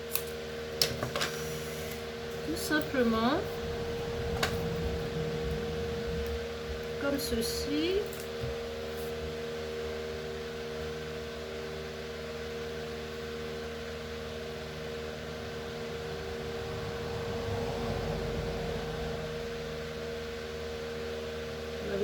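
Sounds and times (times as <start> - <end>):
electric fan humming: 0.0 - 22.0.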